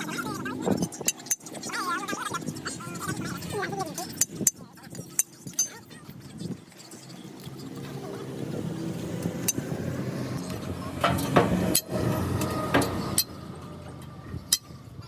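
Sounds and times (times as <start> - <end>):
engine running: 6.8 - 15.0.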